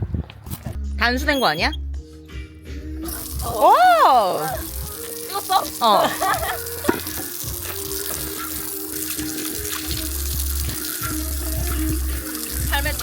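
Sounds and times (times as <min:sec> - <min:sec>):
background music: 0:00.8 - 0:13.0
tap water running and splashing: 0:03.1 - 0:13.0.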